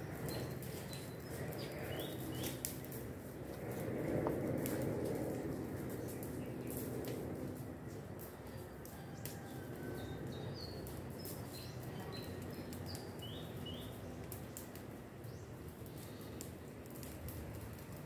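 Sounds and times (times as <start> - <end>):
small birds chirping: 0.0 - 2.9, 9.9 - 17.1
low outdoor background noise: 0.0 - 18.0
faint clicks: 15.8 - 18.0.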